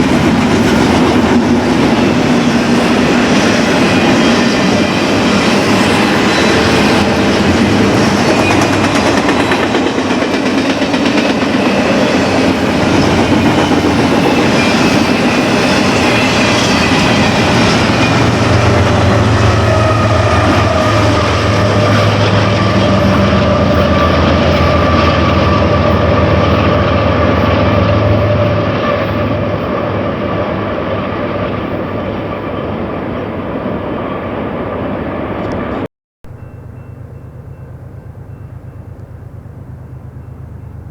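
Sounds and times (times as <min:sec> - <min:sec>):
wheels clicking on rails: 0:00.0 - 0:30.4
freight train cars rolling: 0:00.0 - 0:40.9.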